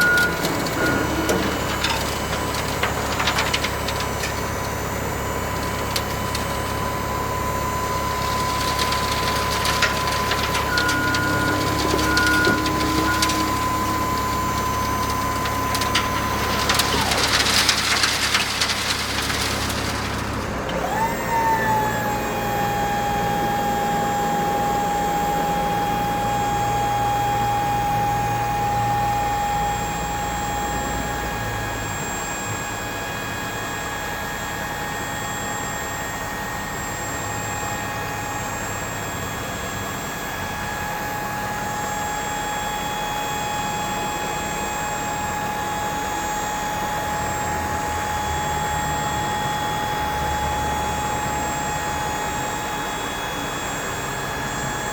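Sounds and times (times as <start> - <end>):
truck engine rumble: 0.0 - 32.4.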